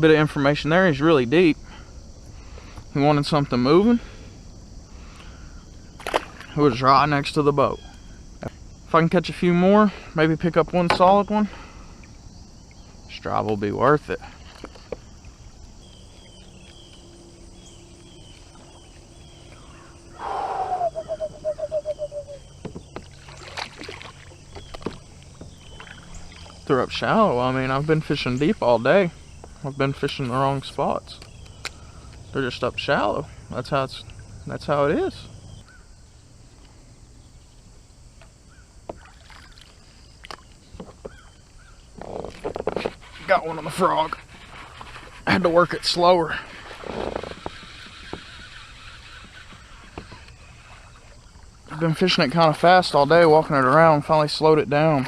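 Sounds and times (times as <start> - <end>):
faint chirps: 11.0 - 37.6
fishing reel spool whirring: 46.5 - 51.2.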